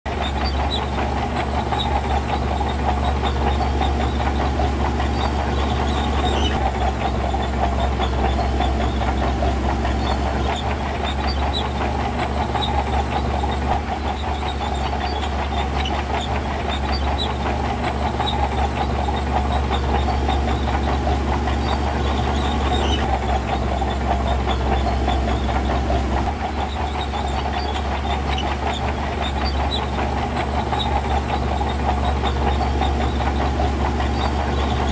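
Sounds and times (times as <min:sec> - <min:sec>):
heavy diesel machinery droning: 0:00.1 - 0:34.9.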